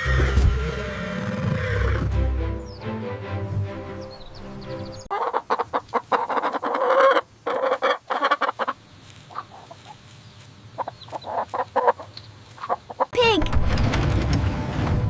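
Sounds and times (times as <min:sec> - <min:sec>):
chickens clucking: 0:04.9 - 0:13.2.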